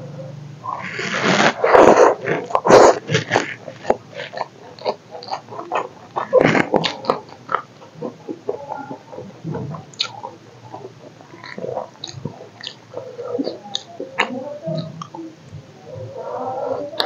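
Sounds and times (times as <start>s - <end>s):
wet chewing and lip-smacking: 2.1s - 15.6s
chilli being bitten: 10.0s - 10.2s.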